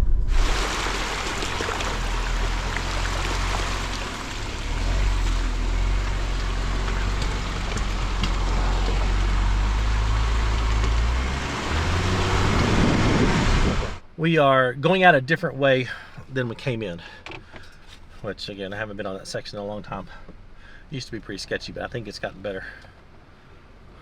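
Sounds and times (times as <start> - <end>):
low engine rumble: 0.0 - 24.0
tyres rushing on dirt: 0.3 - 14.0.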